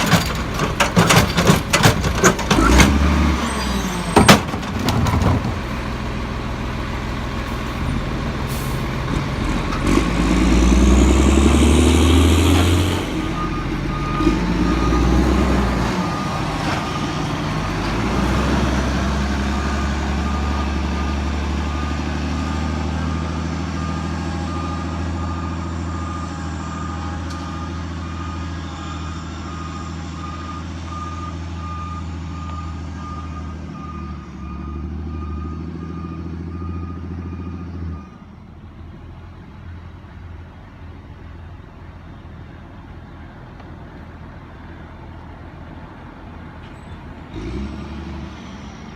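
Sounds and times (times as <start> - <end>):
garbage truck engine revving: 0.0 - 37.9, 47.2 - 48.9
reversing alarm beeping: 13.2 - 17.1, 19.4 - 38.2.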